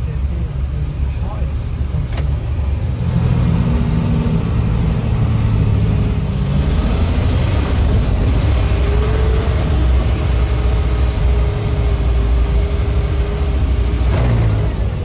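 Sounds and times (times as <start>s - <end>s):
tracked vehicle engine running: 0.0s - 15.0s.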